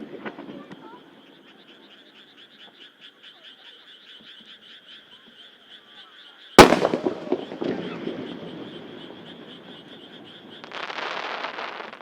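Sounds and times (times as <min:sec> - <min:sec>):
frogs croaking: 0:00.0 - 0:12.0
firework bang: 0:06.6 - 0:12.0.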